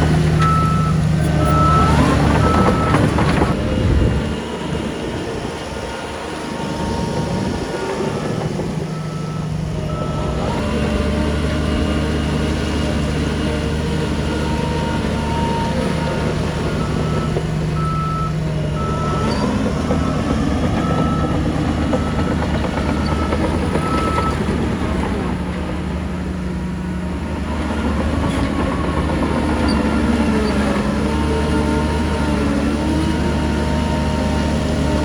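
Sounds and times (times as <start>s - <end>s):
heavy diesel engines running: 0.0s - 35.0s
reversing alarm beeping: 0.4s - 3.6s, 6.4s - 11.2s, 14.1s - 24.6s.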